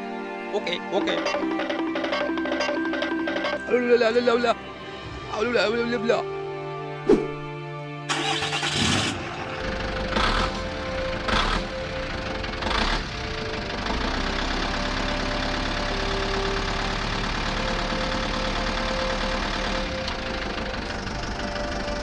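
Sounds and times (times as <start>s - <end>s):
small engine running: 8.1s - 22.0s.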